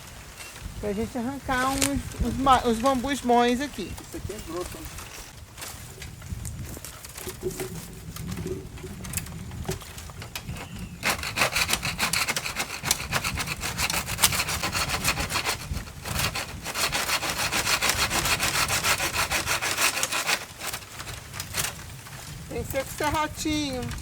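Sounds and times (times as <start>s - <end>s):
handsaw sawing bamboo: 10.6s - 21.7s.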